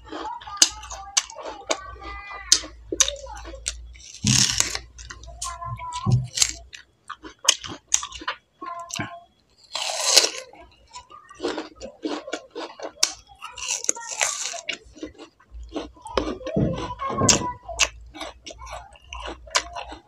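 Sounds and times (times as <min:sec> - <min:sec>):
biting and chewing fruit: 0:00.0 - 0:20.0.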